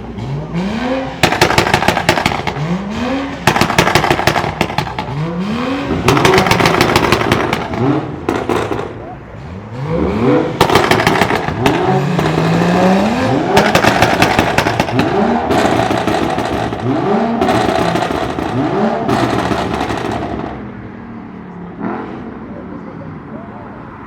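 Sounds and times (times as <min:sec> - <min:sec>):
car engine revving: 0:00.0 - 0:20.9
exhaust crackling and popping: 0:01.2 - 0:09.2, 0:10.5 - 0:20.6.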